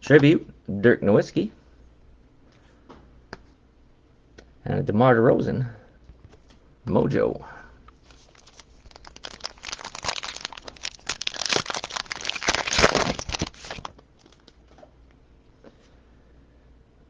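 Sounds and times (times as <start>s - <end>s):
foil wrapper crinkling and tearing: 8.0s - 14.8s.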